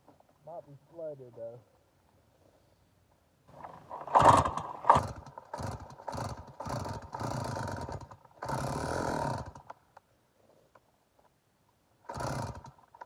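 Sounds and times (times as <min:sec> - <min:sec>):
chainsaw recoil starter pulls: 0:03.5 - 0:09.8, 0:12.0 - 0:13.0.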